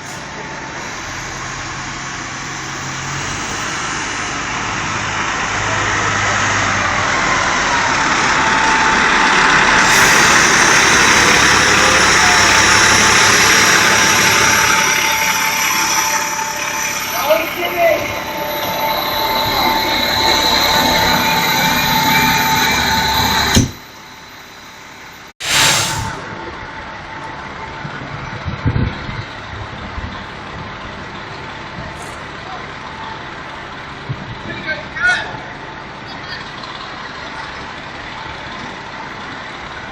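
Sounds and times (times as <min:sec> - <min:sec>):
truck engine rumbling: 0:00.0 - 0:39.9
short loud hiss: 0:25.4 - 0:26.3.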